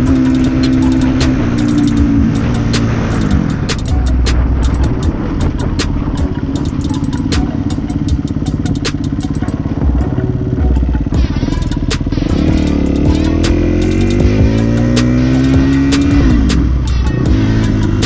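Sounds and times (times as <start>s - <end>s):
dirt bike engine running: 0.0s - 18.0s
sharp clicks: 0.1s - 9.5s.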